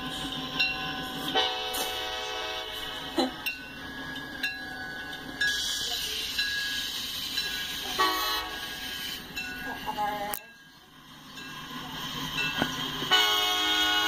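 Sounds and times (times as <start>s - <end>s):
locomotive engine drone: 0.0s - 14.0s
train rumbling: 0.0s - 14.0s
wheels clicking over rails: 9.3s - 13.2s.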